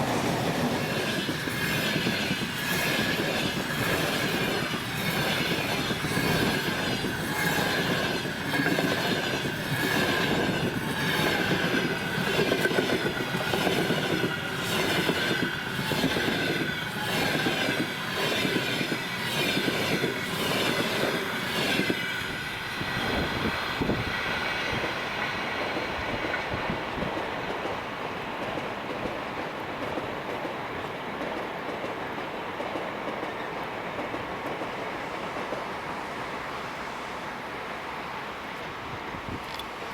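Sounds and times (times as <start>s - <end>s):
train high whine: 0.0s - 31.3s
train wheels clattering: 0.0s - 35.8s.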